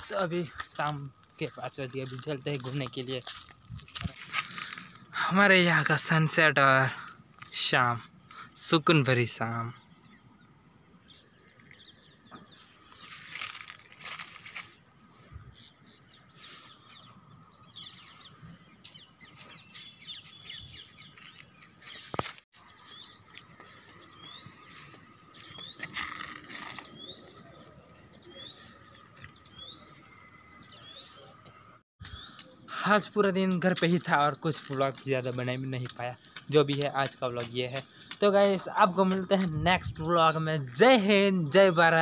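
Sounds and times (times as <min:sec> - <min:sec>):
birds chirping and calling: 0:09.3 - 0:32.6.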